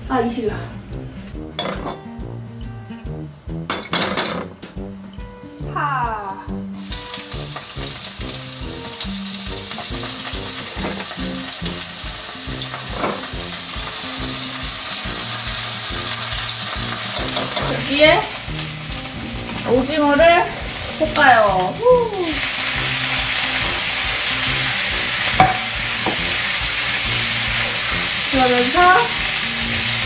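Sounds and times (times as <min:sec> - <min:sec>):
onions sizzling in hot oil: 0:06.8 - 0:30.0.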